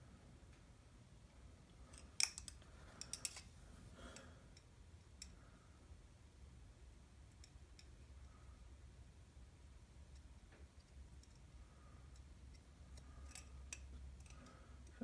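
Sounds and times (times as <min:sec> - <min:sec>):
low steady hum: 0:00.0 - 0:15.0
small metallic clicks and ticks: 0:01.8 - 0:03.5, 0:04.1 - 0:05.4, 0:07.3 - 0:08.0, 0:10.1 - 0:15.0.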